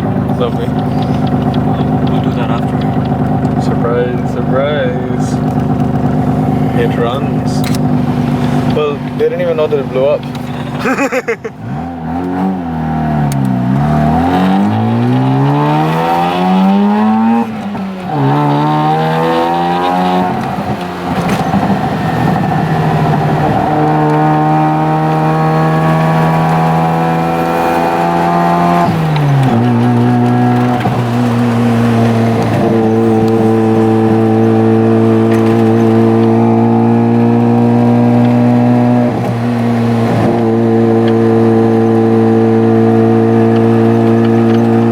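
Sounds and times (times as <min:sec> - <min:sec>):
rotary engine revving: 0:00.0 - 0:44.9.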